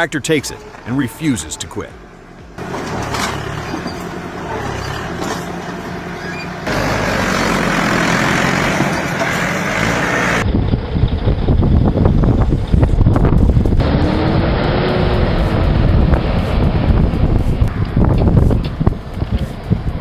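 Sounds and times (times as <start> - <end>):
heavy diesel engine running: 1.9 - 20.0.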